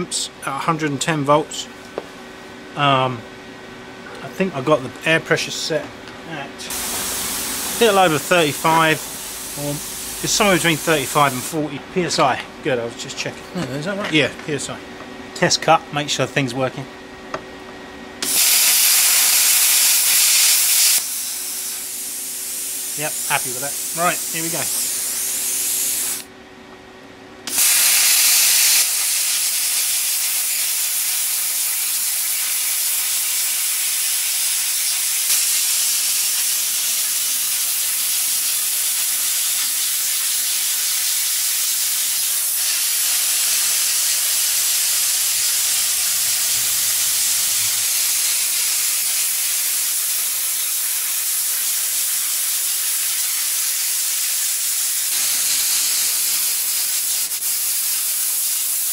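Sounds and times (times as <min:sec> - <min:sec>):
plasma cutter hissing: 0:06.7 - 0:11.6, 0:18.2 - 0:26.2, 0:27.5 - 0:58.9.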